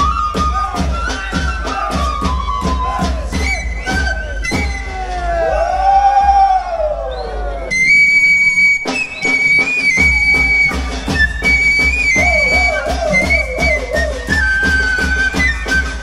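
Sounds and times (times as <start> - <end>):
steady drum beat: 0.0 - 5.4, 9.9 - 16.0
high flute melody: 0.0 - 16.0
warbling whistle: 0.0 - 16.0.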